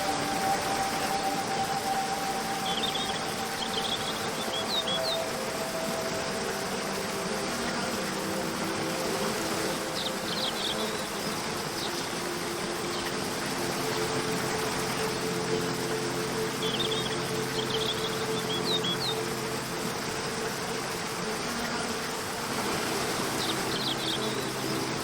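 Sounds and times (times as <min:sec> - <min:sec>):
bird chirps: 0:00.0 - 0:06.2, 0:14.0 - 0:19.6
soft held music tones: 0:00.0 - 0:25.0
waterfall rushing: 0:00.0 - 0:25.0.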